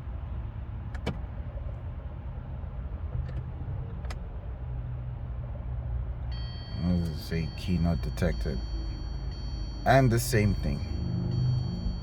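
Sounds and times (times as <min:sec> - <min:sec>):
low cabin hum: 0:06.0 - 0:12.0.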